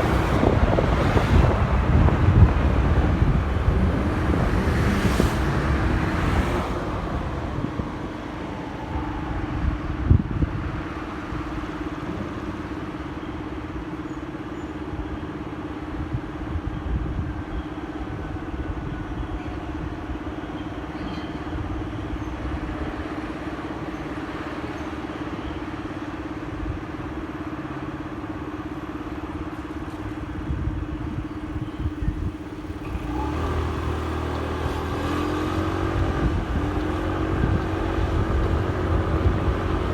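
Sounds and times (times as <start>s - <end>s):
motorcycle engine revving up: 32.8s - 39.9s.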